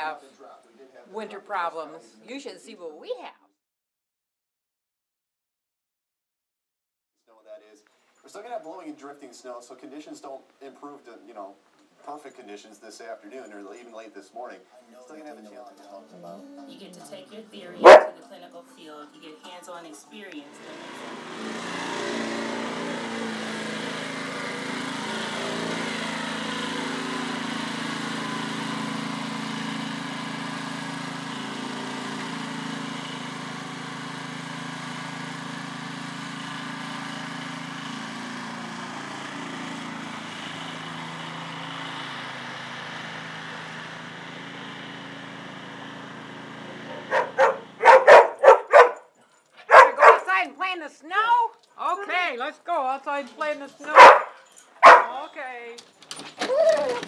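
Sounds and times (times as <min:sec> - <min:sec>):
engine running: 0:17.7 - 0:18.2, 0:20.4 - 0:50.5, 0:53.2 - 0:57.0.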